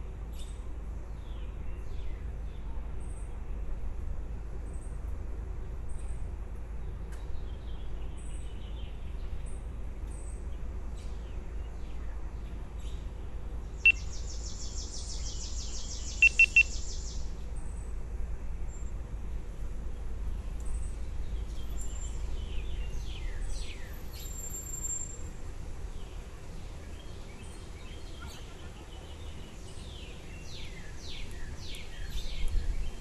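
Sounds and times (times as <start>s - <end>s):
birds chirping: 13.6s - 17.6s
sharp high bird pips: 16.2s - 16.8s.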